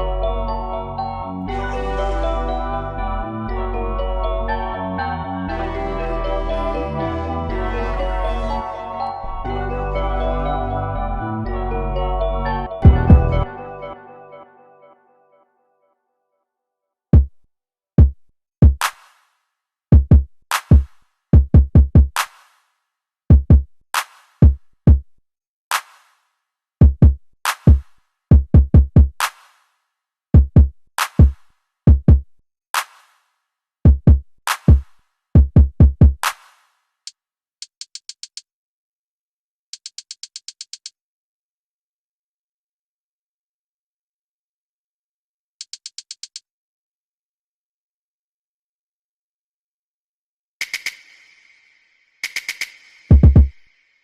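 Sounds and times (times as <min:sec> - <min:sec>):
drum machine beat: 0:12.8 - 0:13.5, 0:17.2 - 0:17.4, 0:18.0 - 0:19.0, 0:19.9 - 0:22.4, 0:23.3 - 0:25.1, 0:26.8 - 0:29.4, 0:30.4 - 0:32.9, 0:33.9 - 0:36.4, 0:45.7 - 0:46.4, 0:52.4 - 0:53.6.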